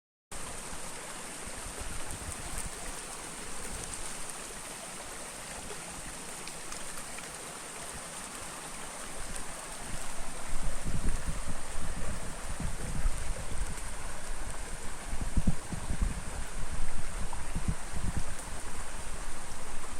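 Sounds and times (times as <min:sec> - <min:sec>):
flowing water rushing: 0:00.3 - 0:19.9
wind on microphone: 0:01.4 - 0:04.2, 0:09.0 - 0:19.9.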